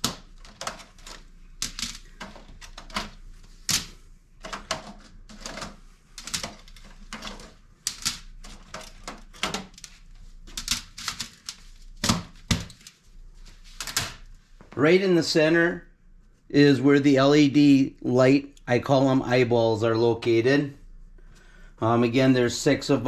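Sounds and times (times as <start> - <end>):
metal filters clicking and rattling: 0.0 - 13.0.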